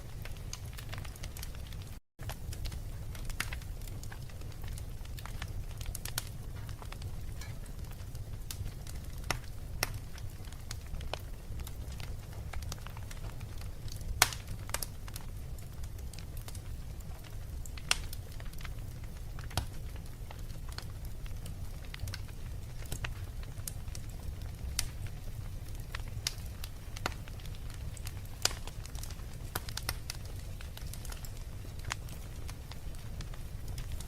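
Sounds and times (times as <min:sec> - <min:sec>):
wood fire crackling and popping: 0:00.0 - 0:34.0.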